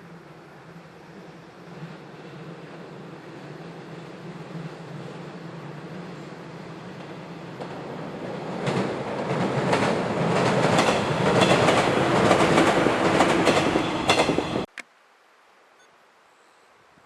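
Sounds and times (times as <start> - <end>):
train wheels clacking over rail joints: 8.5 - 14.6.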